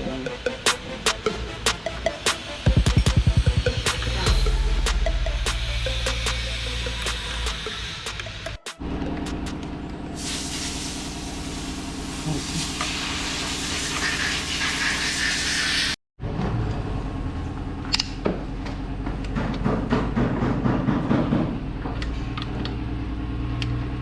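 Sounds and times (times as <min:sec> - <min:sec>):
machine humming: 0:00.7 - 0:09.5
sharp knocks: 0:00.7 - 0:09.5
loud air hiss: 0:10.2 - 0:16.0.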